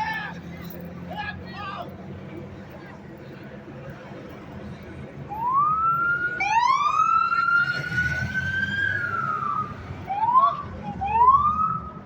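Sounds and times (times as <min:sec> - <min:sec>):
police siren wailing: 0:05.4 - 0:12.0.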